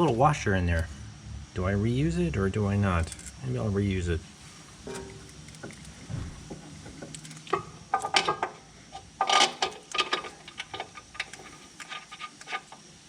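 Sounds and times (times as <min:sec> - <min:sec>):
small metal parts clinking: 0:03.0 - 0:03.4, 0:04.9 - 0:06.0, 0:06.9 - 0:13.0.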